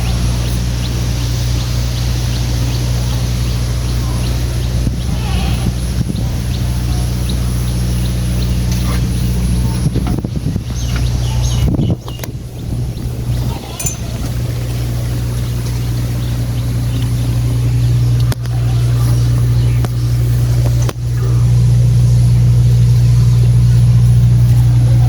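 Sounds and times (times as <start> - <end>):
construction machine engine humming: 0.0 - 25.0.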